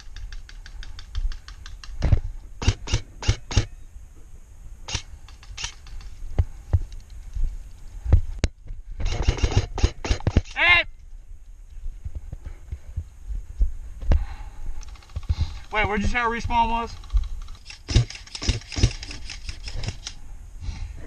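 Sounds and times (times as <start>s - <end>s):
airsoft guns firing: 2.6s - 3.7s, 9.0s - 10.6s, 14.8s - 20.1s.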